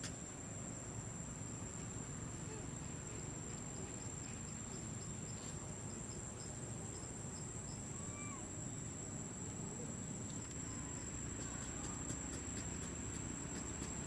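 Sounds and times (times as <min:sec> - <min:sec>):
insect high-pitched buzz: 0:00.0 - 0:14.0
low outdoor background hum: 0:00.0 - 0:14.0
insect short high chirp: 0:01.3 - 0:11.9.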